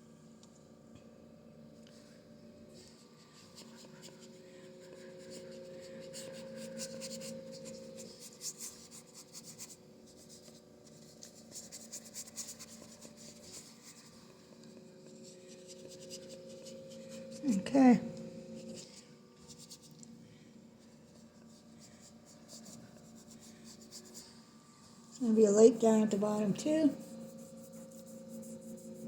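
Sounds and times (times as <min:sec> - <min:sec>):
faint steady hum: 0:00.0 - 0:29.0
paintbrush scratching on canvas: 0:02.9 - 0:20.0, 0:21.0 - 0:24.3, 0:25.4 - 0:29.0.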